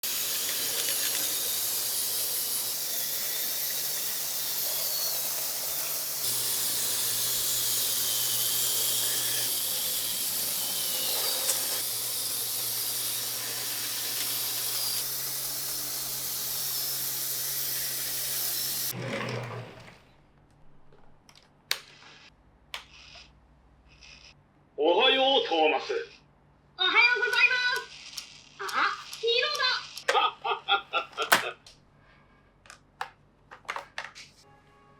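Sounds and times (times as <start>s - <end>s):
toy train motors whirring: 0.0s - 19.0s, 21.8s - 23.3s, 23.9s - 24.4s, 26.8s - 30.3s
plastic wheels on plastic track: 0.0s - 20.1s, 26.9s - 30.2s.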